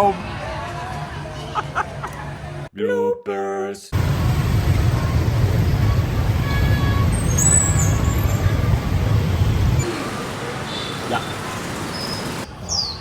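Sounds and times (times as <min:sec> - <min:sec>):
vehicle engine low rumble: 0:04.0 - 0:10.6.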